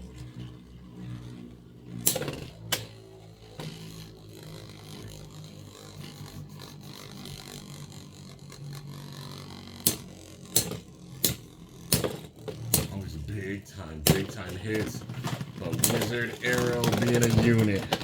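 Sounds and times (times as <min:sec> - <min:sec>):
spinning tops grinding whirr: 0:00.0 - 0:18.0
tops clacking: 0:09.8 - 0:18.0.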